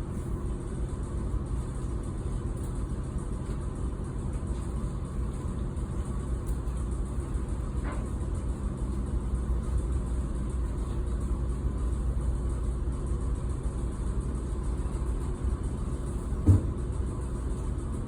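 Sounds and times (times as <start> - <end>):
ship engine drone: 0.0 - 18.0
short thump: 16.4 - 16.8.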